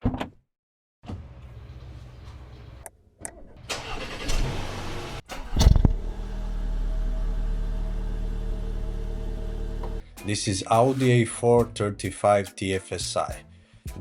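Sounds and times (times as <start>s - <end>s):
car engine revving and idling: 4.0s - 10.0s.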